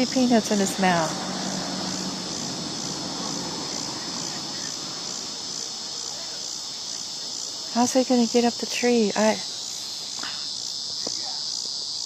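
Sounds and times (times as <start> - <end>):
insect chorus buzzing: 0.0 - 12.0.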